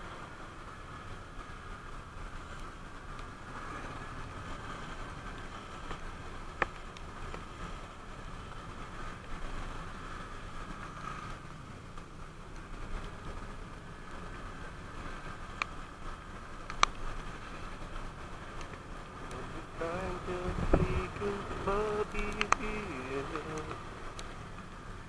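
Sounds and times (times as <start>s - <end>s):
motorcycle engine: 0.1s - 25.0s
sharp click: 22.3s - 22.6s.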